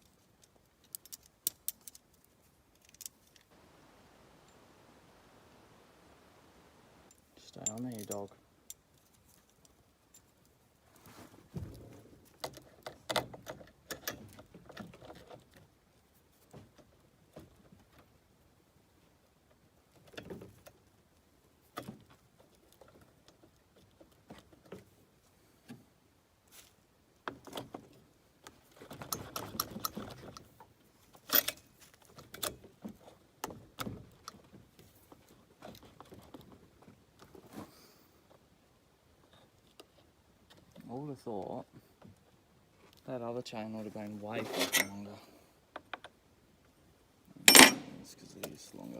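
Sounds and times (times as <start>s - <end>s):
chainsaw chain links clinking: 7.4s - 8.4s, 47.5s - 48.0s.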